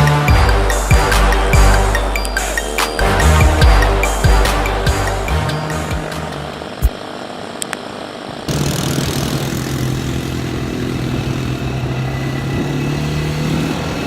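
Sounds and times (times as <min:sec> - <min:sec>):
atv engine running: 0:08.5 - 0:14.0.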